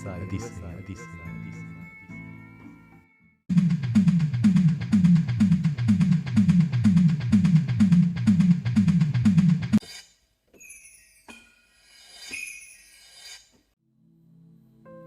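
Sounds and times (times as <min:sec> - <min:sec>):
music with heavy drum beat: 0:03.5 - 0:09.8.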